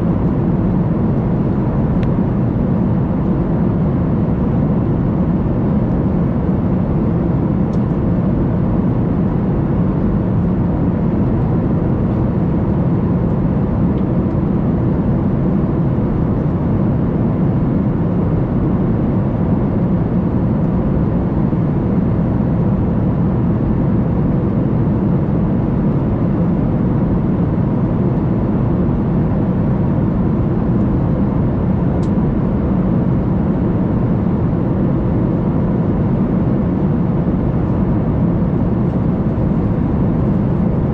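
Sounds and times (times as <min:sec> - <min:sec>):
airliner cabin rumble: 0:00.0 - 0:40.9.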